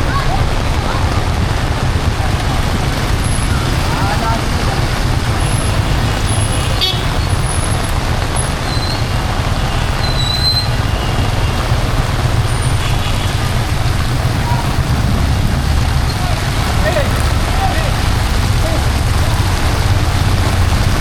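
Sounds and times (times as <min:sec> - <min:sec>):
heavy rain hiss: 0:00.0 - 0:21.0
passing vehicles rumbling: 0:00.0 - 0:21.0.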